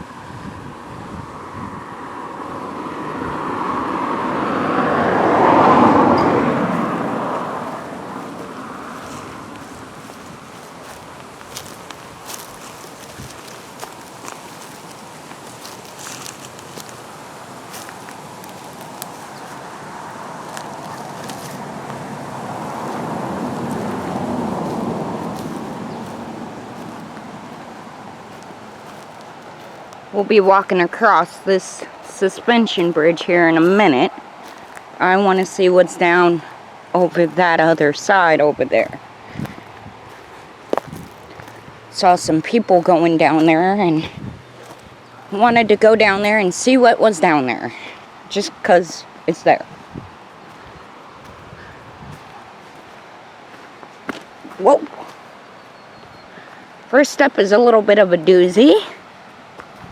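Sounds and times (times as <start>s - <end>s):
vehicle passing by: 1.3s - 53.0s
faint footstep clicks: 6.1s - 30.8s, 39.3s - 43.6s, 44.6s - 45.4s, 50.4s - 55.2s, 59.5s - 59.9s.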